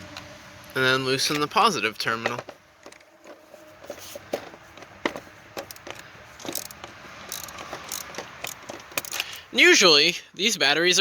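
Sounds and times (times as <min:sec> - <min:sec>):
ratchet wrench clicking: 0:05.6 - 0:09.4
sharp metal clicks: 0:05.6 - 0:09.4.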